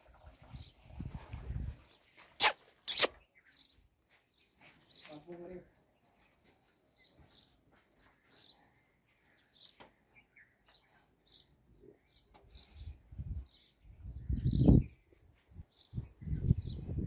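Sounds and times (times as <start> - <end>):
small bird chirping: 2.4 - 3.8.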